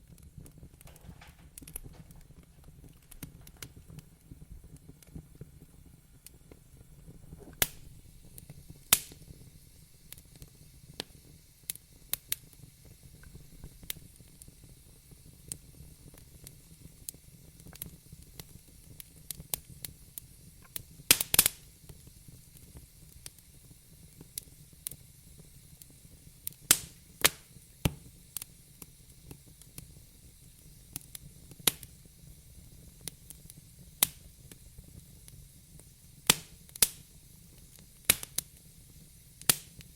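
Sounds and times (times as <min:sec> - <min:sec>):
low rumble and hiss of fire: 0:00.0 - 0:39.9
wood fire crackling: 0:00.0 - 0:39.9
loud cracks of burning wood: 0:00.1 - 0:05.2, 0:07.4 - 0:09.3, 0:20.7 - 0:23.4, 0:26.4 - 0:29.9, 0:30.5 - 0:32.0, 0:33.0 - 0:38.6, 0:39.4 - 0:39.9.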